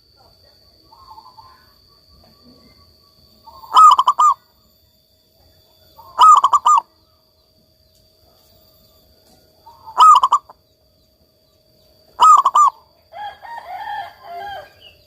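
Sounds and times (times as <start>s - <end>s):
dove cooing: 3.4s - 4.5s, 6.0s - 7.0s, 9.6s - 10.6s, 12.1s - 12.9s.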